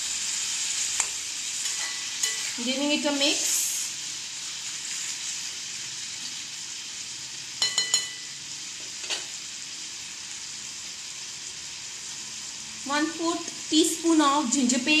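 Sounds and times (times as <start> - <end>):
tomato pieces sizzling in oil: 0.0 - 15.0
metal spatula clinking on pan: 1.7 - 2.6, 7.6 - 8.4.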